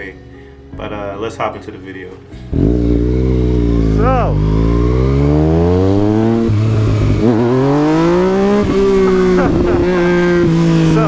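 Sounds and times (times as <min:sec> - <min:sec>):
motorcycle engine accelerating: 0:02.5 - 0:11.0.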